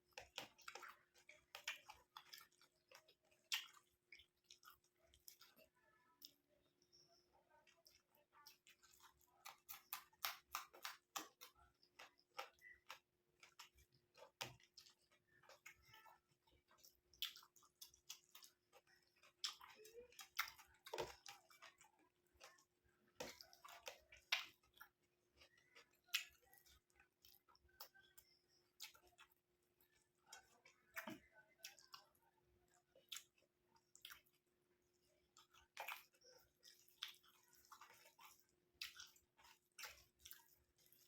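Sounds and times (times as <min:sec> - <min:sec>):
close chewing of food: 0:00.0 - 0:41.0
wet mouth clicks and smacks: 0:00.2 - 0:05.5, 0:09.0 - 0:14.9, 0:17.1 - 0:18.5, 0:23.3 - 0:29.3, 0:35.4 - 0:41.0.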